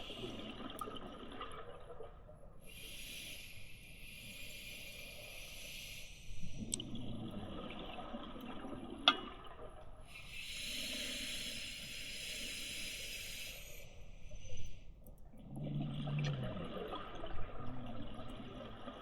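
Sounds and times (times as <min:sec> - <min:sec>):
exhaled bubbles gurgling: 0:00.0 - 0:02.9, 0:06.4 - 0:11.8, 0:15.2 - 0:19.0
regulator inhalation hiss: 0:10.3 - 0:14.0.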